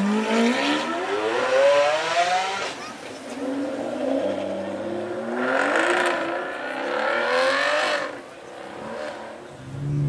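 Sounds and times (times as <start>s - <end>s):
car engine revving: 3.4s - 10.0s.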